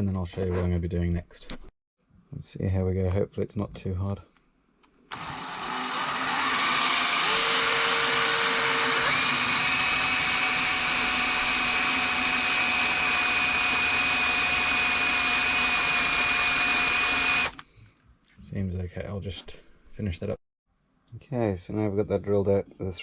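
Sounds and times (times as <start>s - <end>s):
electric drill whining: 5.1s - 17.6s.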